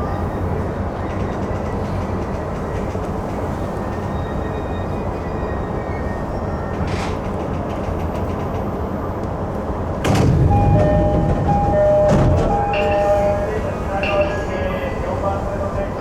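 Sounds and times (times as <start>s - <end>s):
electric train rumbling: 0.0s - 16.0s
two-note electronic chime: 10.5s - 14.5s.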